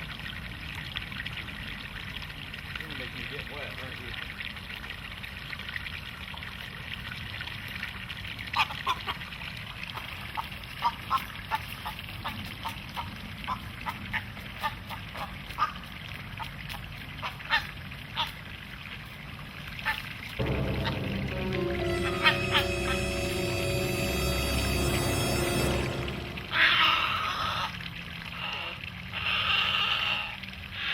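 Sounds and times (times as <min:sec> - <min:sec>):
faint trickling water: 0:00.0 - 0:30.9
music: 0:20.4 - 0:27.3.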